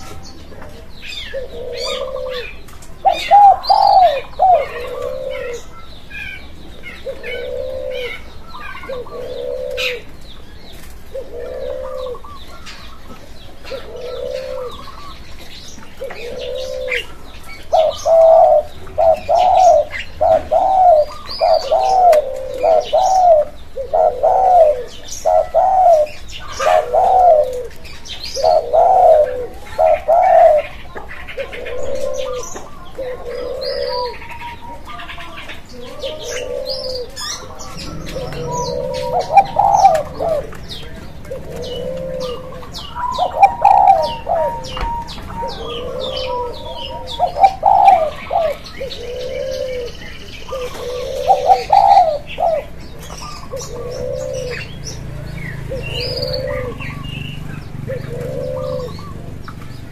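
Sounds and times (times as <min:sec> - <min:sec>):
low cooing bird notes: 0:00.0 - 0:59.9
high bird chirps: 0:36.3 - 0:49.2.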